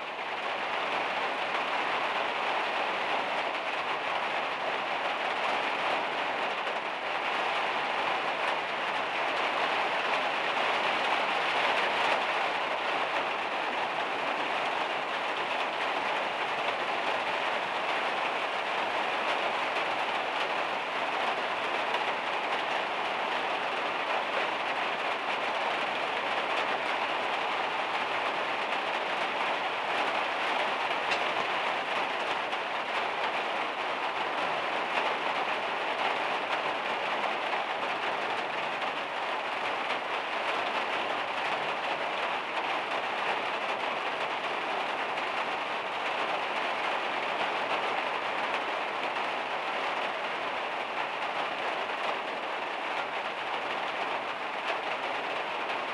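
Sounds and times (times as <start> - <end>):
heavy rain on a metal roof: 0.0 - 55.9.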